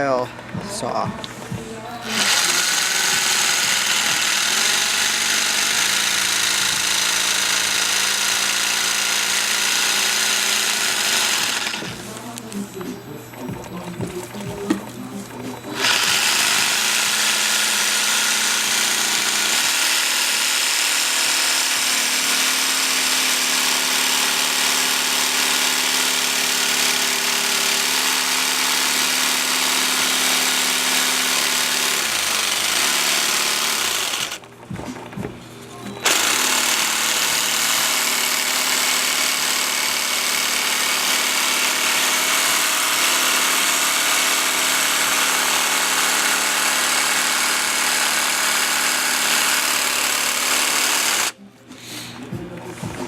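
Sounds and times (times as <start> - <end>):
jigsaw cutting ceramic tile: 2.0 - 35.3, 36.0 - 51.4.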